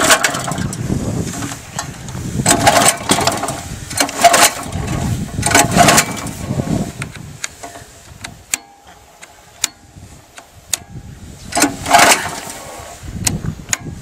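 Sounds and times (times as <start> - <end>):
small petrol engine surging: 0.0 - 7.1, 11.4 - 13.4.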